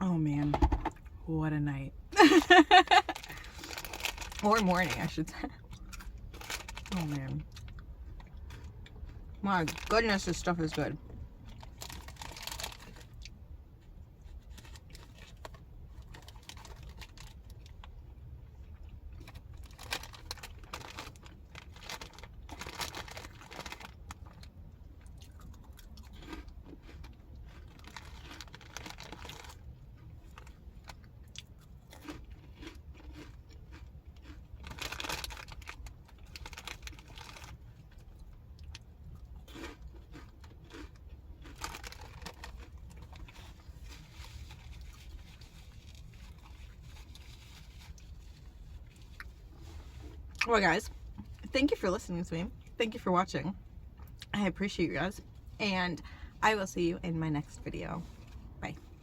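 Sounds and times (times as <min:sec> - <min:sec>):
person chewing crunchy snack: 0:02.9 - 0:04.4, 0:18.8 - 0:49.7
snack wrapper crinkling: 0:02.9 - 0:05.0, 0:05.7 - 0:07.8, 0:11.5 - 0:13.3, 0:14.5 - 0:17.8, 0:19.2 - 0:24.5, 0:25.1 - 0:37.6, 0:38.6 - 0:49.3.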